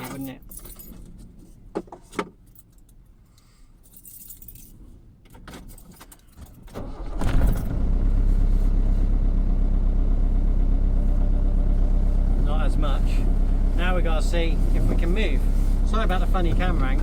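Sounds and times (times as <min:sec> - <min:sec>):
keys jingling in ignition: 0:00.0 - 0:01.4, 0:02.4 - 0:03.2, 0:03.8 - 0:07.8
van engine starting and idling: 0:06.4 - 0:17.0.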